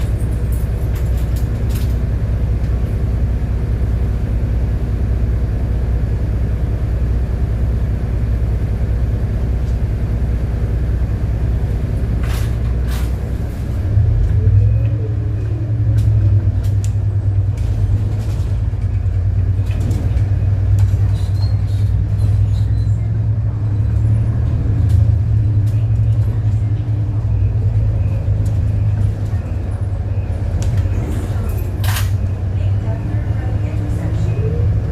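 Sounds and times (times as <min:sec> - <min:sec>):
clicks and rattles from bus: 0:00.0 - 0:03.7, 0:11.6 - 0:34.9
bus engine running: 0:00.0 - 0:34.9.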